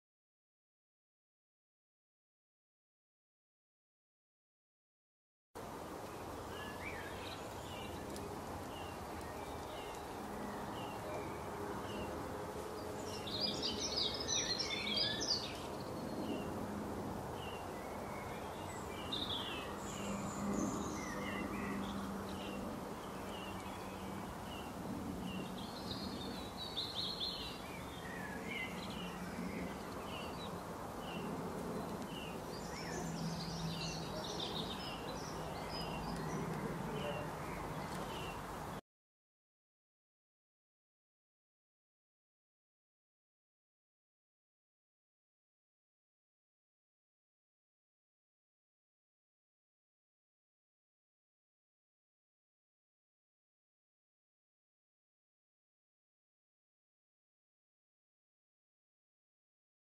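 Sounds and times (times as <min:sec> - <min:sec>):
birds twittering rapidly: 0:05.8 - 0:38.8
bird chirping: 0:12.8 - 0:16.5, 0:17.4 - 0:38.5.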